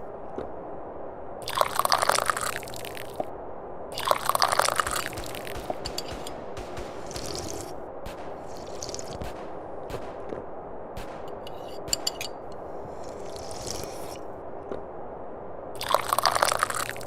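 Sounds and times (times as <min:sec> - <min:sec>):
slurping tea from a cup: 0:13.0 - 0:14.2.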